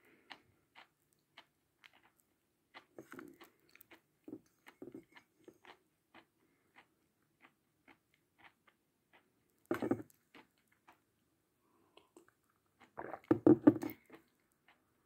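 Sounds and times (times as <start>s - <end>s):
chewing chalk crunches: 0.1s - 11.1s.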